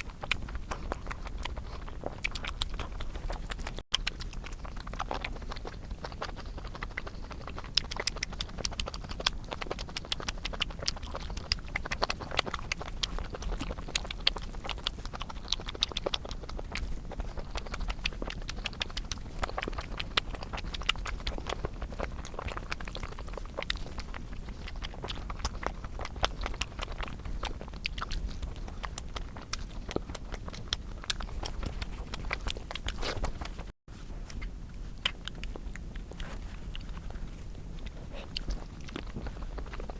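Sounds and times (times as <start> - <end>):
chewing with wet mouth clicks: 0.0 - 39.9.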